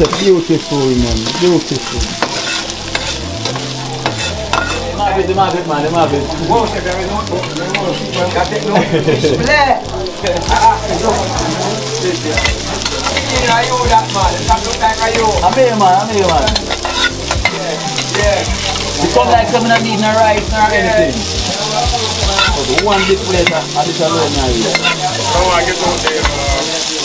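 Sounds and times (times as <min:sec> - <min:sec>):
food sizzling in a pan: 0:00.0 - 0:27.0.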